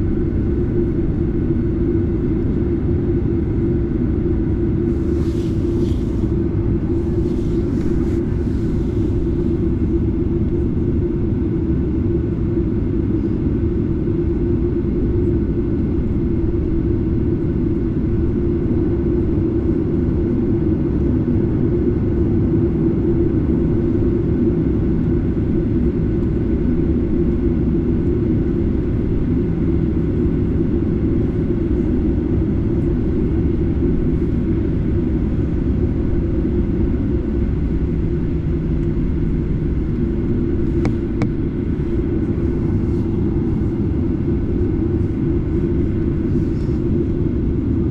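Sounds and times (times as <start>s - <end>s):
jet engine rumble in cabin: 0.0s - 47.9s.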